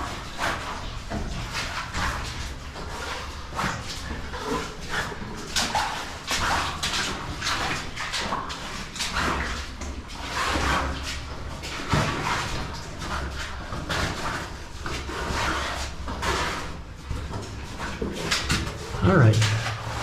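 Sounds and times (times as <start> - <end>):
footsteps splashing through water and mud: 0.0 - 20.0.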